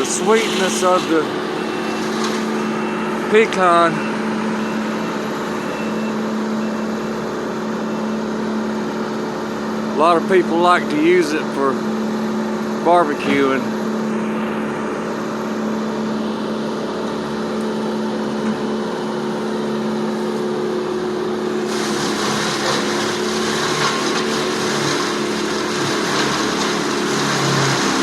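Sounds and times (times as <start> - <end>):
hissing grinding noise: 0.0 - 3.7
heavy machinery engine: 0.0 - 28.0.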